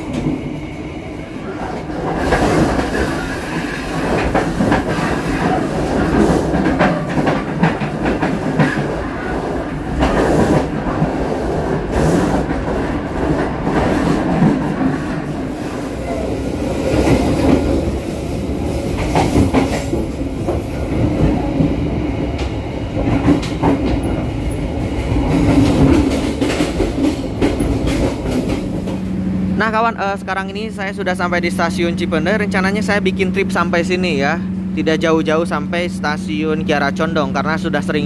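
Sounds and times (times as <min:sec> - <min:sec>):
train wheels rumbling on rails: 0:00.0 - 0:38.0
train wheel clacks: 0:01.7 - 0:15.3, 0:18.9 - 0:29.1.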